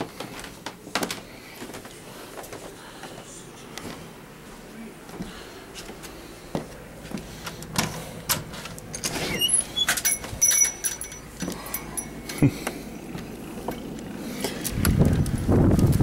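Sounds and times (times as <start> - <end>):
short high squeaks: 9.0 - 10.8.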